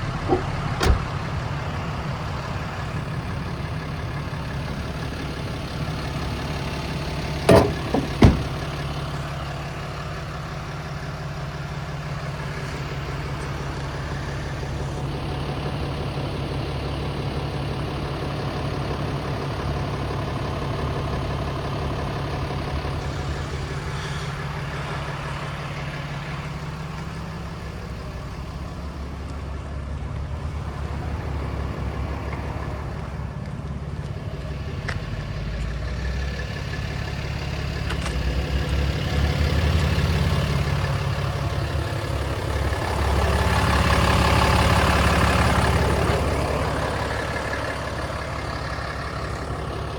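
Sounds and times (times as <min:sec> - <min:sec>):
pickup engine idling: 0:00.0 - 0:49.9
sharp knocks: 0:07.5 - 0:08.6.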